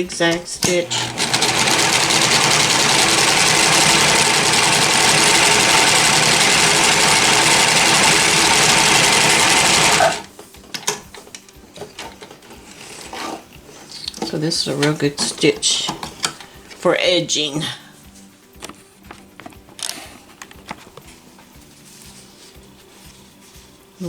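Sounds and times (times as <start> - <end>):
sewing machine running: 0.3 - 10.3.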